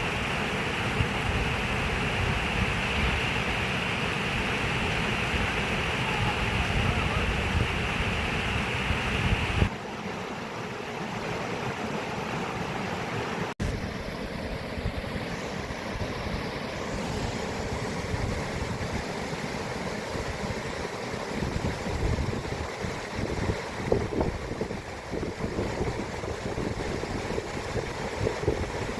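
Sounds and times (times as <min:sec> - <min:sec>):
rushing water: 0:00.0 - 0:28.9
wind buffeting microphone: 0:04.4 - 0:09.7, 0:21.3 - 0:28.9.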